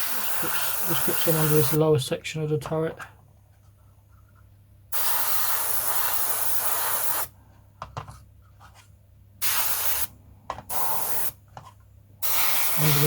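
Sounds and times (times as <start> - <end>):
airbrush spraying: 0.0 - 1.8, 5.0 - 7.3, 9.4 - 10.1, 10.7 - 11.4, 12.2 - 13.0.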